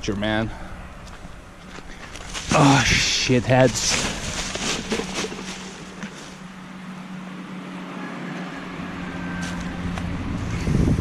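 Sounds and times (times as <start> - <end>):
vehicle engine humming: 0.0 - 11.0
short rustles or clicks: 3.6 - 6.4.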